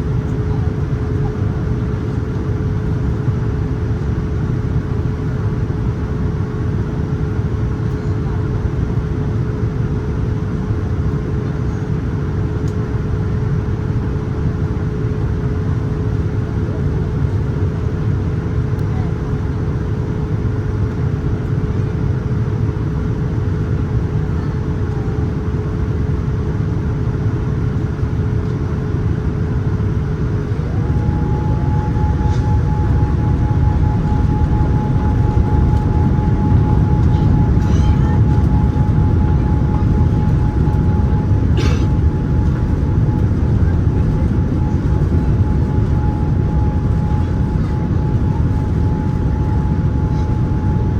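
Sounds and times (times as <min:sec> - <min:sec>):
aircraft cabin engine roar: 0:00.0 - 0:50.9
steady whine: 0:22.8 - 0:50.9.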